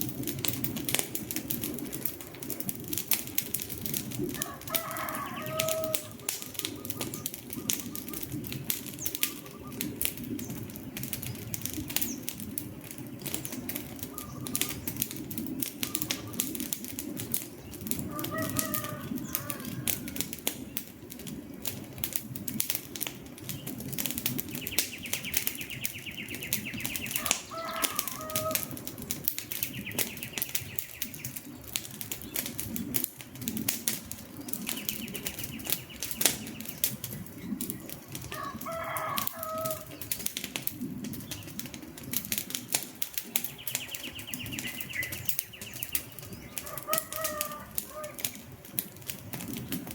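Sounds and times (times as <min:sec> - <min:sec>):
low rush of flames: 0:00.0 - 0:49.9
wood fire crackling: 0:00.0 - 0:49.9
bird calling: 0:04.4 - 0:10.6, 0:13.1 - 0:16.6, 0:17.7 - 0:20.3, 0:24.4 - 0:28.9, 0:43.4 - 0:48.4.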